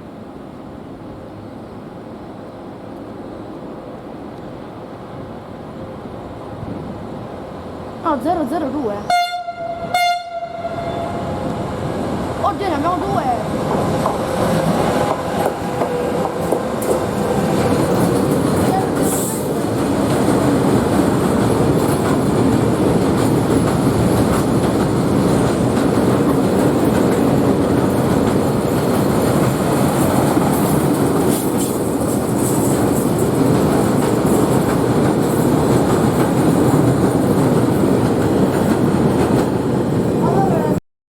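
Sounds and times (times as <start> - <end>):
train wheels on rails: 9.8 - 40.8.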